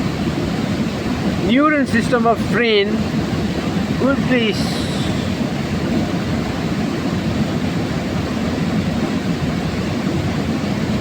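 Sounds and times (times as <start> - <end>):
river rushing down rapids: 0.0 - 11.0.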